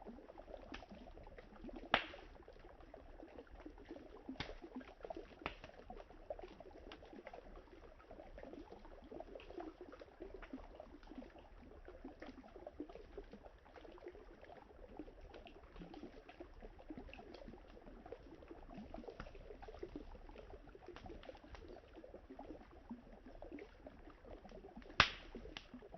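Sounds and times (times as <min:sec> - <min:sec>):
campfire crackling: 0:01.9 - 0:02.3, 0:04.4 - 0:04.6, 0:05.4 - 0:05.7, 0:24.8 - 0:25.9.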